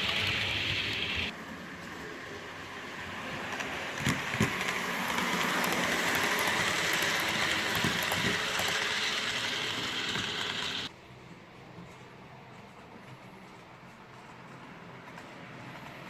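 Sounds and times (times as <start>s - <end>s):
model train wheels rushing on rails: 0.0s - 11.0s.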